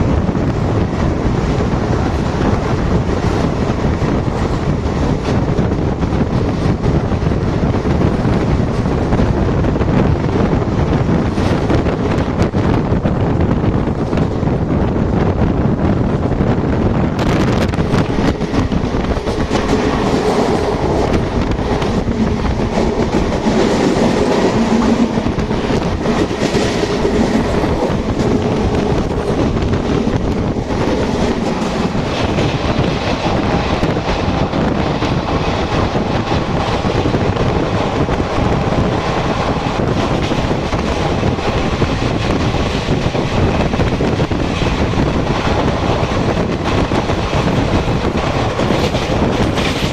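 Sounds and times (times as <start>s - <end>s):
train rumble: 0.0s - 49.9s
train wheels clattering over rail joints: 17.2s - 49.9s.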